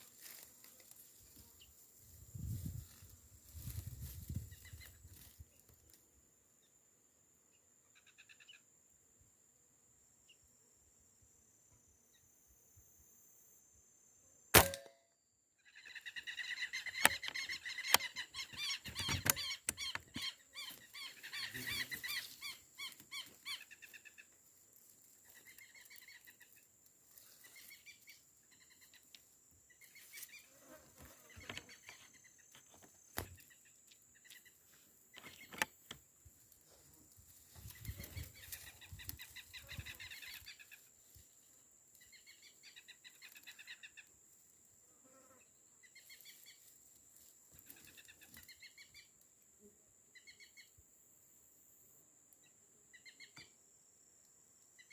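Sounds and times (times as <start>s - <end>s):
air rifle shot: 14.6s - 15.0s.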